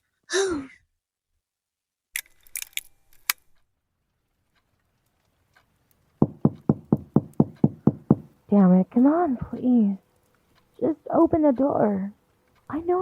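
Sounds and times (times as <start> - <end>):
light clicks and rattles: 2.2 - 3.6
rapid knocking on door: 6.2 - 8.4.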